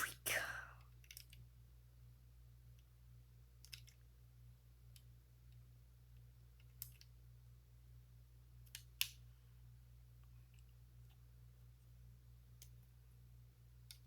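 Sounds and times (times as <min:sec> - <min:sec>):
plastic bricks clicking together: 0:03.6 - 0:04.0.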